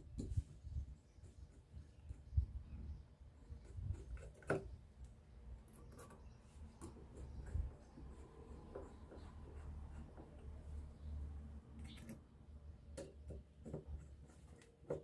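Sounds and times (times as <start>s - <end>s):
clicks and knocks of hand work: 3.9s - 9.4s, 12.9s - 15.0s.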